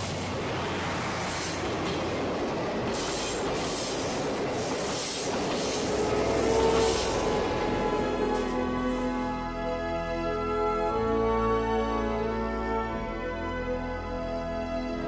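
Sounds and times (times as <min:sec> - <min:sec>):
train wheels rumbling on rails: 0:00.0 - 0:09.4
music: 0:07.3 - 0:15.0.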